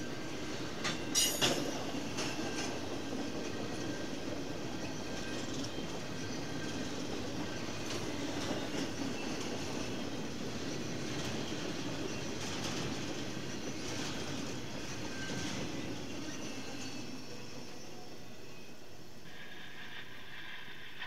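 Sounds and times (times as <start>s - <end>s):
train wheels clacking over rail joints: 0.8s - 3.6s
faint high wheel squeal: 4.7s - 19.9s.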